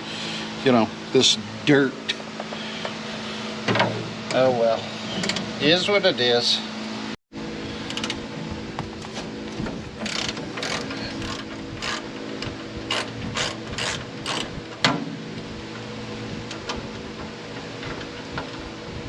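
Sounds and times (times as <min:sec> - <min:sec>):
steady background hum: 0:00.0 - 0:19.0
ratchet wrench clicking: 0:10.0 - 0:12.0.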